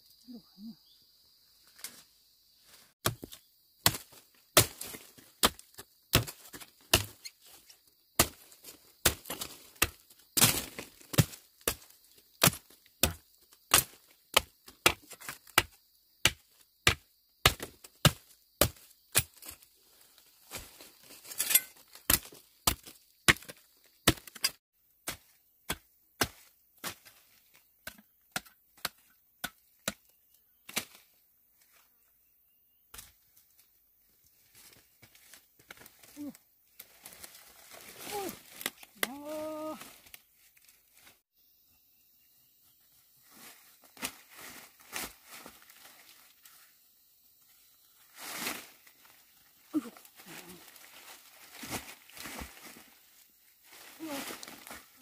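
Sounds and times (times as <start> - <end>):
blade chopping wood: 3.0 - 7.2, 9.0 - 19.5.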